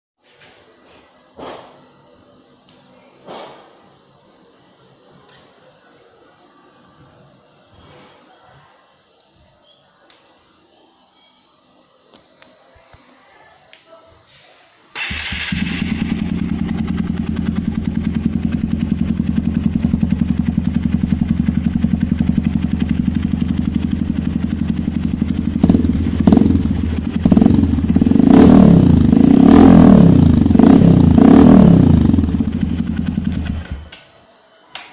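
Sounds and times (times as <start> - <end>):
motorcycle engine idling and revving: 15.0 - 33.9.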